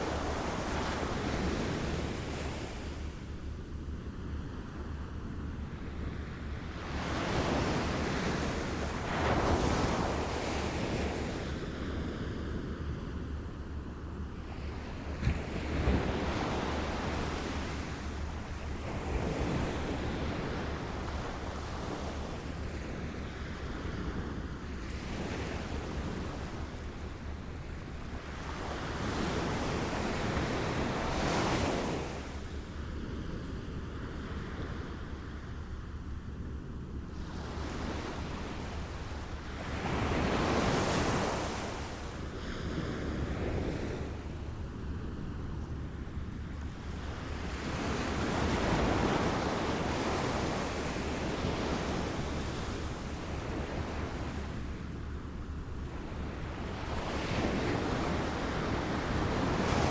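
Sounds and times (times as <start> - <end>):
small waves lapping at shore: 4.2 - 13.2, 14.4 - 35.9, 37.1 - 59.9
small waves lapping on shore: 55.7 - 59.9.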